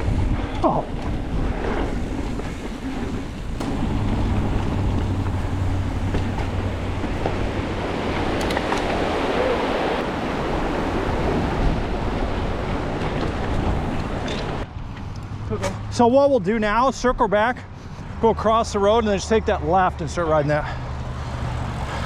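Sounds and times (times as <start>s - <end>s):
wind rushing on microphone: 0.0s - 14.8s
bike tyres rumbling over dirt: 1.0s - 14.6s, 20.8s - 22.0s.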